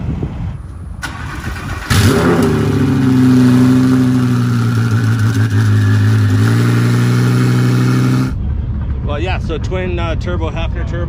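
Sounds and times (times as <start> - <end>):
sports car engine idling: 1.9 - 10.6.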